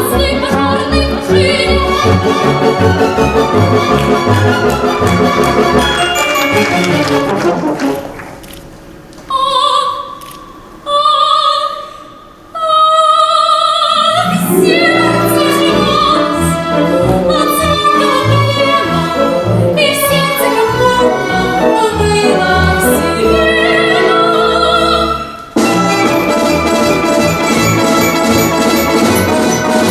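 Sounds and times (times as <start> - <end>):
woman singing operatically: 0.0 - 3.1, 9.3 - 10.2, 10.8 - 25.6
instrumental accompaniment: 0.0 - 8.4, 14.0 - 29.9.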